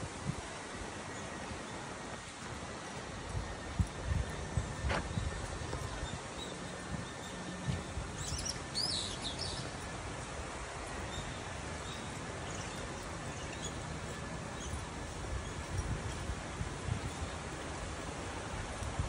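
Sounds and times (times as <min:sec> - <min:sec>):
outdoor background hiss: 0:00.0 - 0:19.0
bird chirping: 0:06.0 - 0:09.9.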